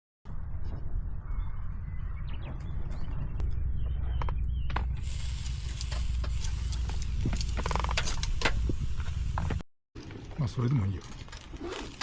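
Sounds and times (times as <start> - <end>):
low steady rumble: 2.7 - 9.6
hiss with small crackles: 4.9 - 9.6.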